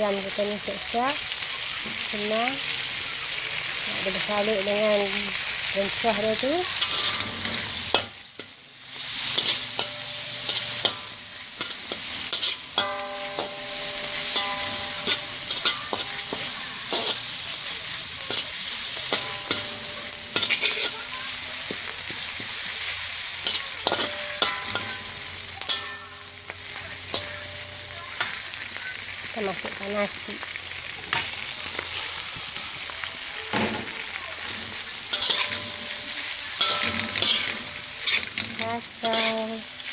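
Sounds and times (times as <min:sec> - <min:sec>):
food sizzling in hot oil: 0:00.0 - 0:39.9
spatula scraping and knocking pan: 0:06.6 - 0:08.6, 0:09.2 - 0:22.8, 0:23.4 - 0:28.5, 0:33.6 - 0:39.9.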